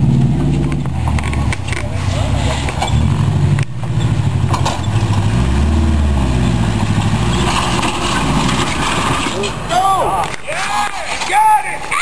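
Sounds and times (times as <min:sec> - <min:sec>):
vehicle engine revving: 0:00.0 - 0:09.6.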